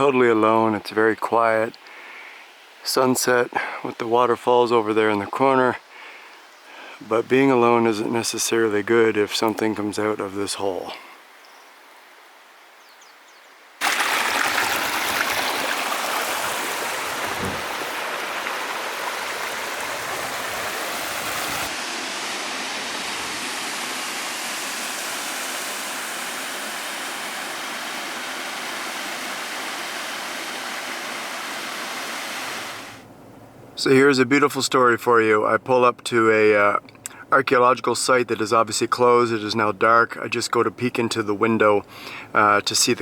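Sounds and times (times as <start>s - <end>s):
rushing stream water: 13.8s - 33.0s.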